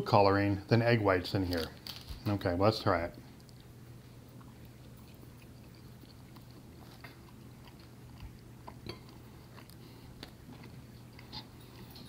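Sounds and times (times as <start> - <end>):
steady low hum: 0.0 - 12.0
pastry crust crackling: 1.3 - 11.5
chewing and biting pastry: 3.2 - 12.0.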